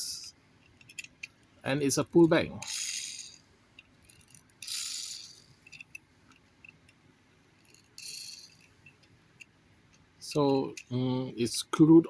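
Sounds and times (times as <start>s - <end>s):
toy car gears whirring: 2.6s - 6.0s, 7.6s - 9.0s.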